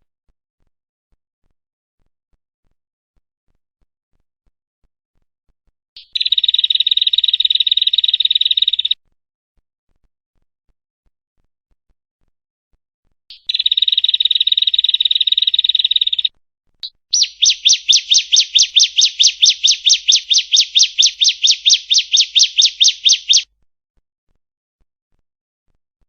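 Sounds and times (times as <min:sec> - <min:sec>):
bird buzzy trill: 0:17.1 - 0:23.4
bird sharp repeated notes: 0:17.1 - 0:23.4.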